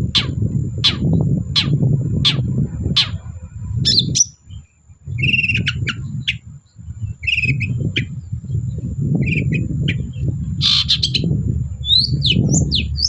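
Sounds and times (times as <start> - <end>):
shrike singing: 0.0 - 13.0
steady low rumble: 0.0 - 13.0.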